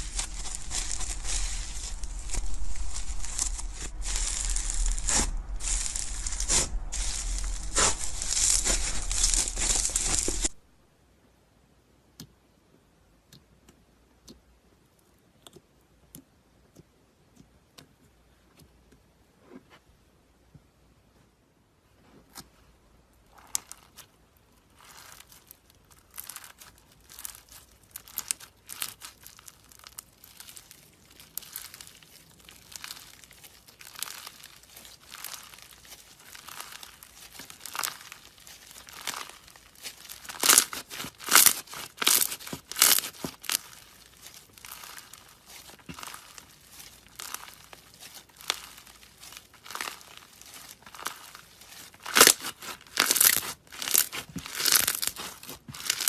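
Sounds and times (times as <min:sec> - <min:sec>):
crinkling and crackling: 0:00.0 - 0:10.7, 0:23.2 - 0:56.0.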